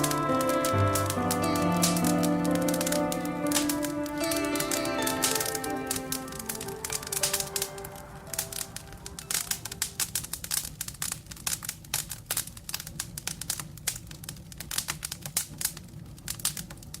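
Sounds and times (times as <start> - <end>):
background music: 0.0 - 10.6
wood fire crackling and popping: 0.0 - 17.0.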